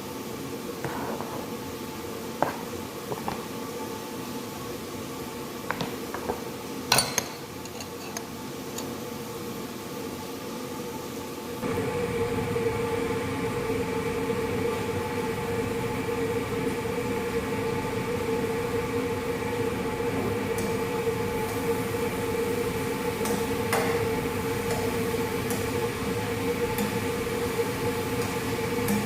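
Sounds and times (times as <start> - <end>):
machine hum: 11.5 - 29.0.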